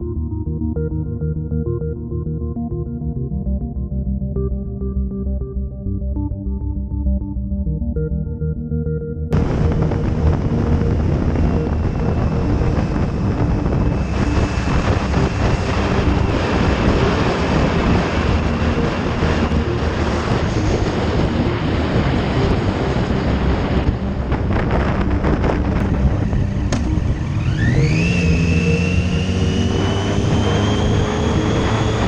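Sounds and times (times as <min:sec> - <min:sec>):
wind noise on microphone: 0:09.3 - 0:32.0
motorcycle engine running: 0:09.4 - 0:32.0.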